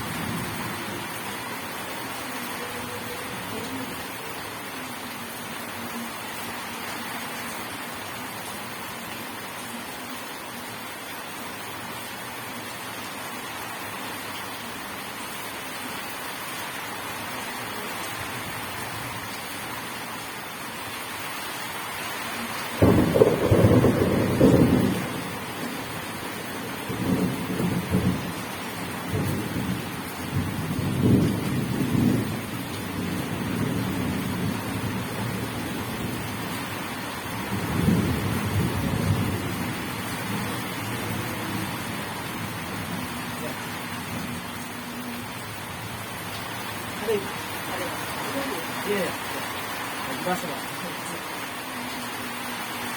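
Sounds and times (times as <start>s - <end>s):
steady rain: 0.0s - 52.9s
thunder clap rumbling: 22.8s - 26.1s, 26.8s - 28.4s, 37.4s - 44.7s.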